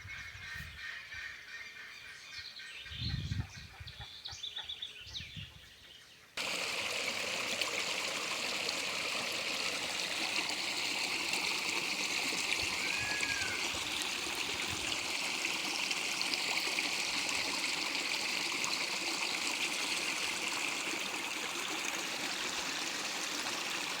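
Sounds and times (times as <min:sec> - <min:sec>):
stream water flowing: 0:06.4 - 0:24.0.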